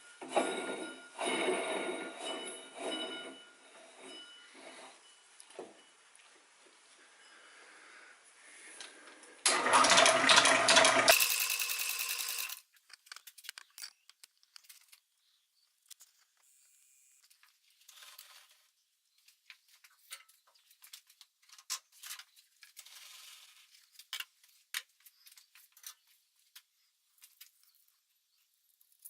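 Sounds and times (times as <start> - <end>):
metal tools clinking: 0.0 - 5.9
machine running: 9.5 - 12.6.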